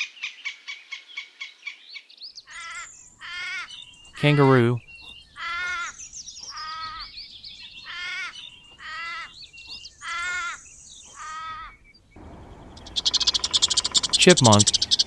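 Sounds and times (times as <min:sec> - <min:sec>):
small birds chirping faintly: 0:01.5 - 0:15.0
harsh caw-like animal calls: 0:02.5 - 0:11.9.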